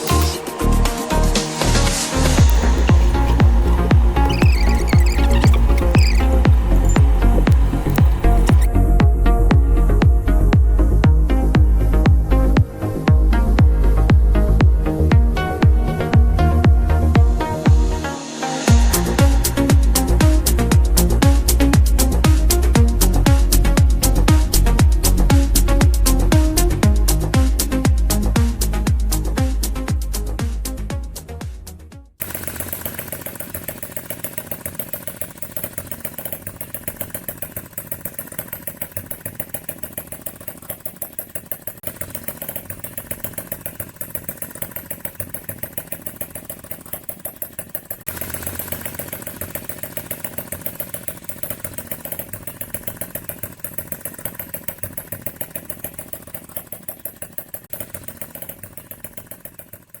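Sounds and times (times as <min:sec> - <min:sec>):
model engine running: 0:00.0 - 0:08.7, 0:32.2 - 1:00.0
music: 0:00.0 - 0:32.2.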